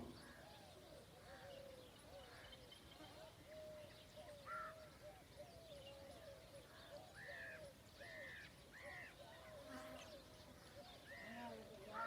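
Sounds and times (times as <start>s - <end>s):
birds chattering: 0.0s - 12.0s.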